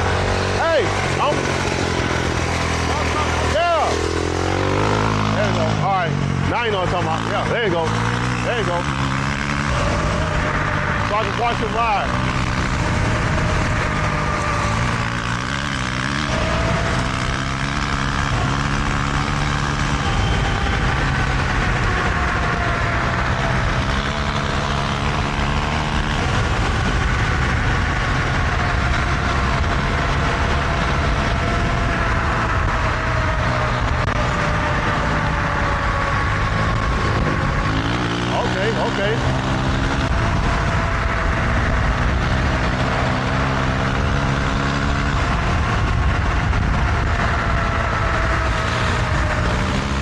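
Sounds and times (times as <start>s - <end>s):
dirt bike engine running: 0.0s - 50.0s
wind and riding noise: 0.0s - 50.0s
electric bike motor whine: 8.9s - 38.7s.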